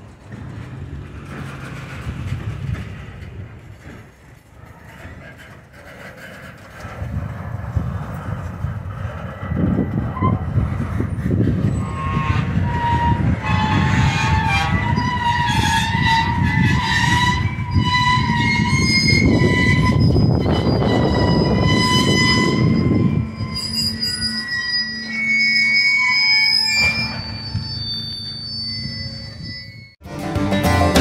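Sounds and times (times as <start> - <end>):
rumble of wheels on track: 0.0 - 30.0
train wheels squealing: 8.2 - 30.0.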